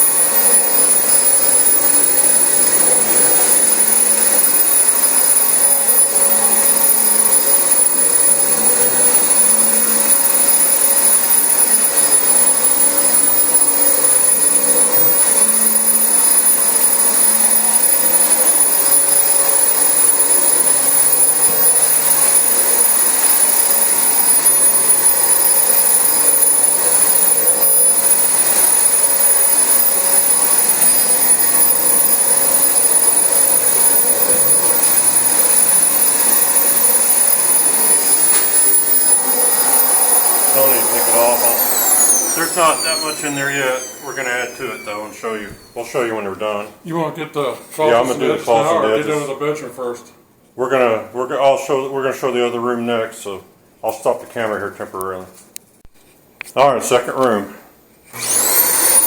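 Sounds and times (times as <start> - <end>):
vacuum cleaner running: 0.0 - 45.9, 58.1 - 59.0.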